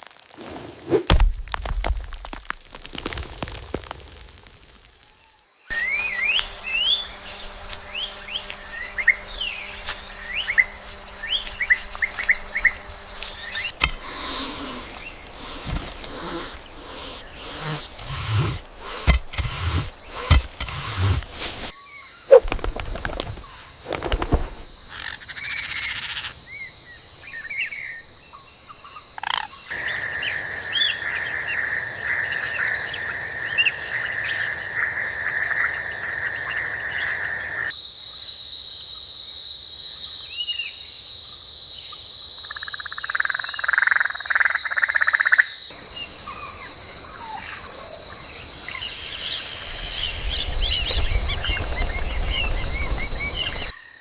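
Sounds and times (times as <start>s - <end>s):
insects droning: 1.6s - 54.0s
frog-like calls: 5.7s - 21.4s
birds chirping and calling: 5.8s - 21.7s, 49.2s - 53.7s.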